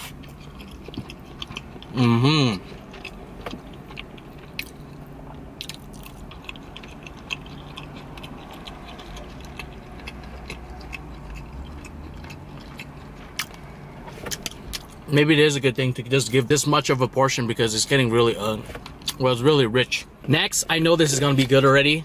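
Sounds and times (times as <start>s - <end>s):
person chewing: 0.0s - 15.0s
steady low hum: 0.0s - 22.0s.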